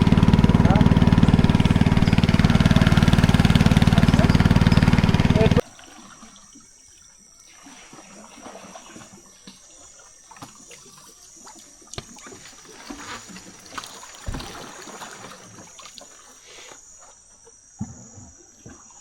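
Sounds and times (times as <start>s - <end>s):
faint trickling water: 0.0s - 17.1s
insects trilling: 0.0s - 19.0s
dull thump: 14.2s - 14.7s.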